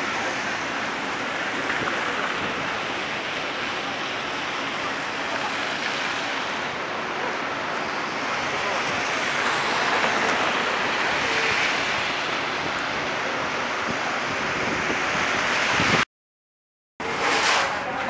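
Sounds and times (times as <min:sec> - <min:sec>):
blizzard wind rushing: 0:11.8 - 0:16.0.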